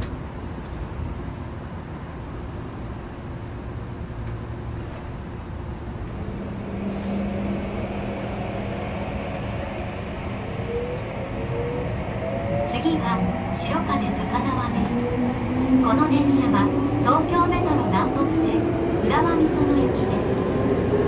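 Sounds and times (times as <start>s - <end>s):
train running rumble: 0.0s - 12.0s, 13.0s - 21.0s
train motor tone: 2.4s - 11.1s.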